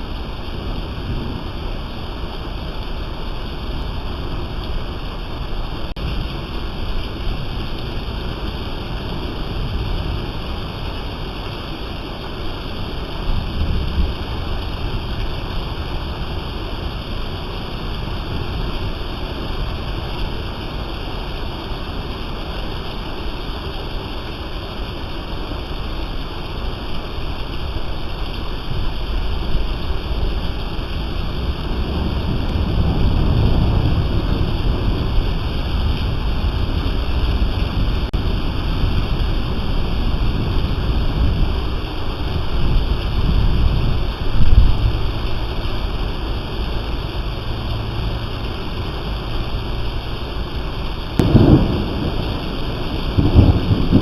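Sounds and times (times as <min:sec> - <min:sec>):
heavy rain hissing: 0:00.0 - 0:54.0
wind gusts on microphone: 0:27.6 - 0:54.0.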